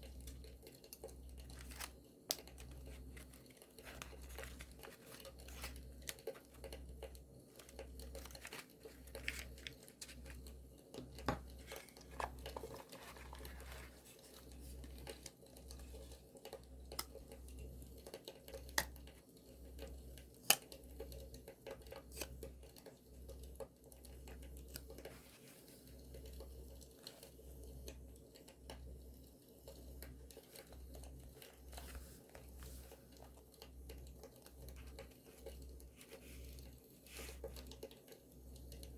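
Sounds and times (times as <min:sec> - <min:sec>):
paper crinkling and tearing: 0:07.6 - 0:10.4.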